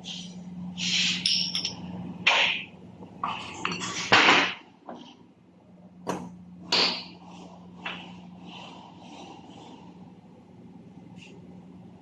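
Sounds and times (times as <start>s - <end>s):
steady low hum: 0.0s - 12.0s
metal parts clanking and scraping: 0.8s - 1.9s, 3.3s - 4.5s.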